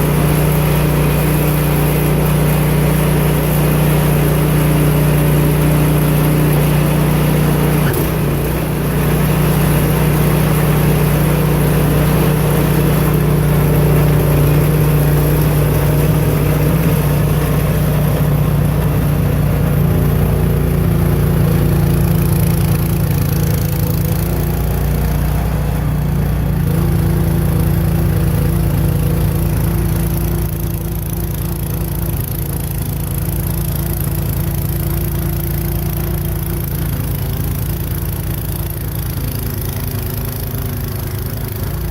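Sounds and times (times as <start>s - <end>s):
snow blower engine running: 0.0s - 41.9s.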